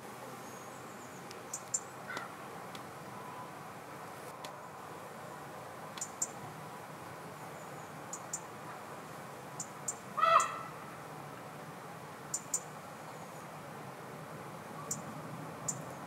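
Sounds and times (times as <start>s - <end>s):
birds ticking: 1.1s - 2.4s, 5.9s - 6.4s, 7.8s - 8.5s, 9.6s - 10.7s, 12.3s - 12.8s
harsh bird call: 10.2s - 10.8s.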